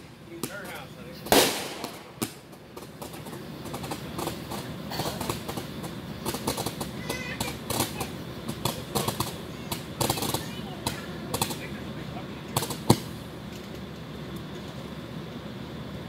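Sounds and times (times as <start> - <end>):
firework bang: 0.0 - 11.8, 12.5 - 13.2
fireworks crackling: 0.0 - 16.0.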